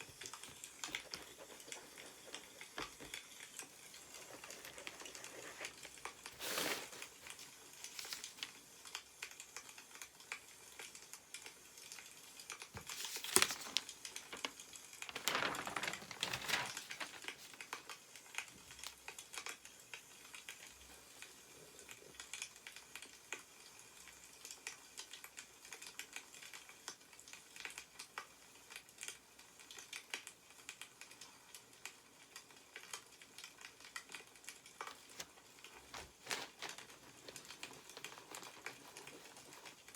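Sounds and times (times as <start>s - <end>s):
newspaper pages rustling: 0.0s - 8.6s, 12.7s - 18.0s, 34.1s - 39.9s.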